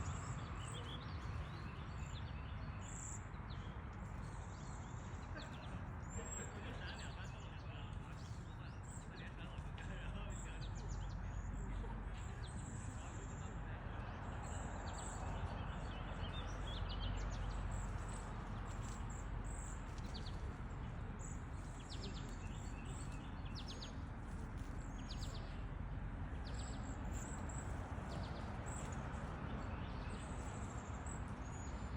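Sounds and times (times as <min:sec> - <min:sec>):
low outdoor background noise: 0:00.0 - 0:31.9
small birds chirping: 0:00.0 - 0:31.9.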